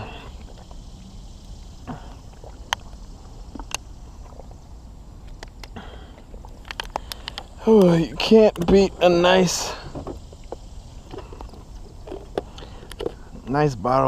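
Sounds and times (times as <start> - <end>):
steady low rumble: 0.0 - 14.0
person drinking: 1.8 - 4.4.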